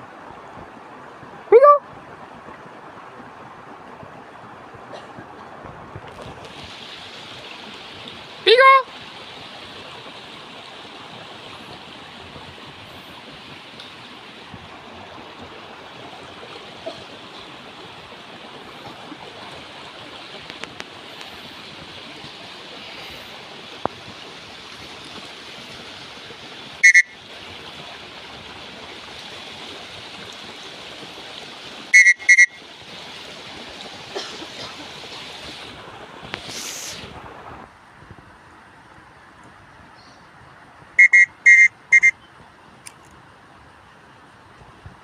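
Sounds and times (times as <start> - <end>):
shrill whistle-like calls: 26.8 - 27.2, 31.9 - 32.6, 41.0 - 42.2.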